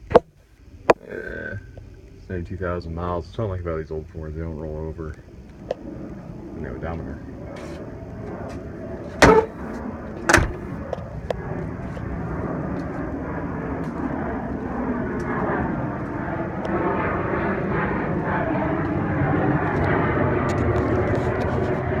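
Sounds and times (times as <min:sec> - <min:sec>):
distant engine drone: 0:00.0 - 0:22.0
sharp knock: 0:09.2 - 0:09.6, 0:10.3 - 0:10.6.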